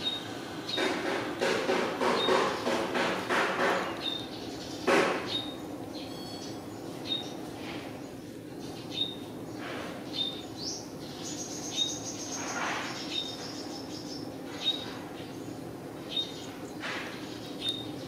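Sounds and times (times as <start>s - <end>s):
low background hum: 0.0s - 18.0s
bird chirping: 3.9s - 7.5s, 8.5s - 18.0s.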